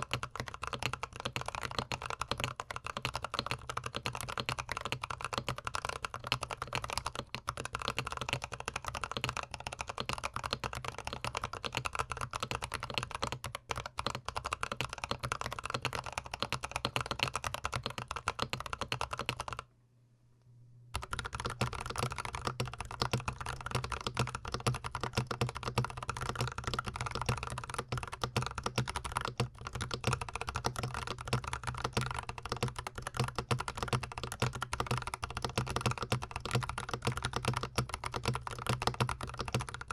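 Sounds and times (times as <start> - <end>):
fast typing on mechanical keyboard: 0.0 - 19.7, 21.0 - 39.9.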